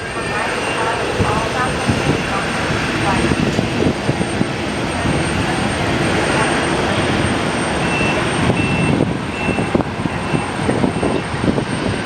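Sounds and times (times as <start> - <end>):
airliner engine noise: 0.0 - 12.0
wind buffeting microphone: 0.0 - 12.0
short high beeps: 7.8 - 10.4.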